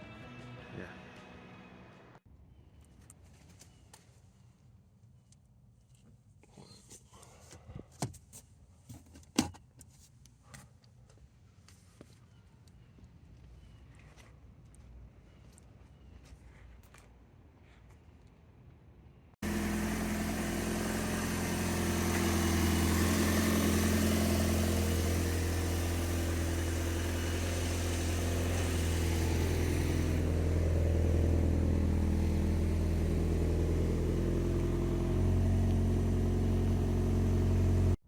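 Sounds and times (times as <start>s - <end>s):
car engine running: 19.4s - 38.0s.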